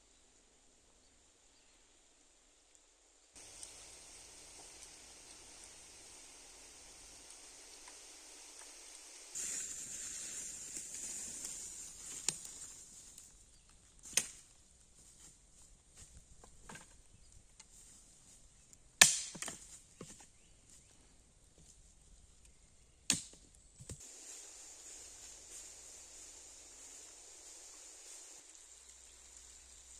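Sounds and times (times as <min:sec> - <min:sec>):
hiss: 0:03.4 - 0:13.2, 0:24.0 - 0:29.9
chopping strikes on wood: 0:19.0 - 0:19.7, 0:23.1 - 0:23.4.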